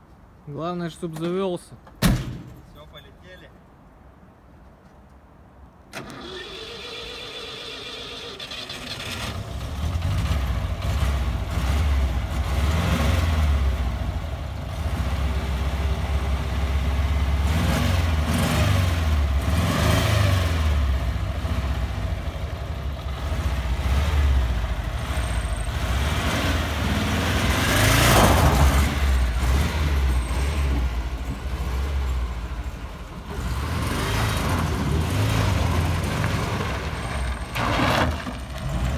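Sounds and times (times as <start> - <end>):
car engine cranking and starting: 5.9 - 11.6
car engine revving: 17.3 - 22.1, 33.2 - 37.0.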